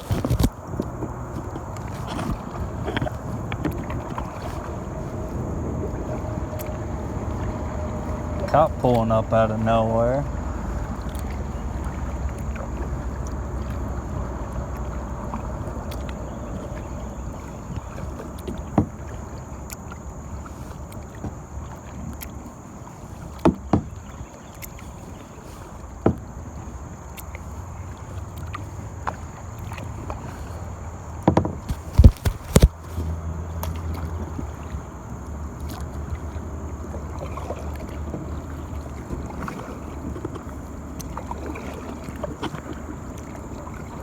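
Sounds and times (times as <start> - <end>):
water rushing: 0.0 - 44.0
wind: 0.0 - 44.0
sharp paddle knocks: 31.3 - 32.8.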